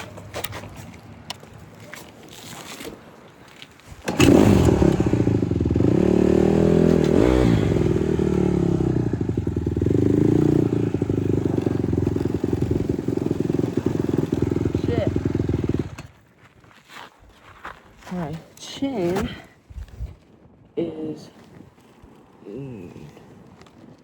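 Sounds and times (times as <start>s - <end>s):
dirt bike engine running: 4.0s - 16.2s.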